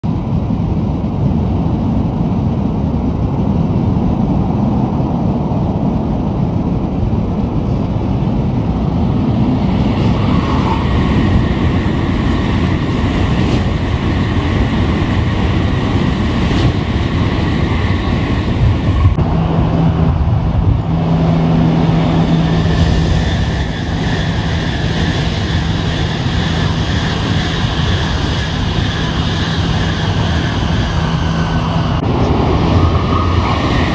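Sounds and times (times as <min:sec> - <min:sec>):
high-speed train rushing past: 0:00.0 - 0:33.9
steady low hum: 0:02.3 - 0:33.9.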